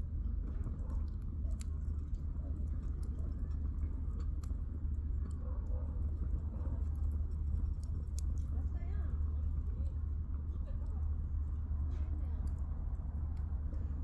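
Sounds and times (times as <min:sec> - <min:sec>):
campfire crackling and popping: 0:01.0 - 0:05.0, 0:06.3 - 0:08.8.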